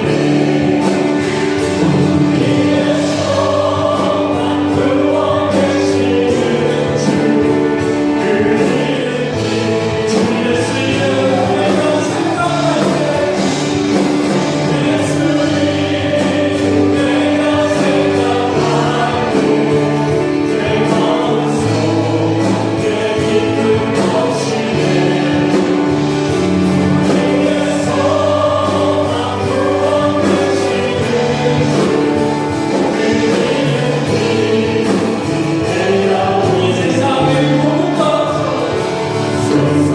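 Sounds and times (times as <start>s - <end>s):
group singing worship song: 0.0s - 39.9s
live band accompaniment: 0.0s - 39.9s.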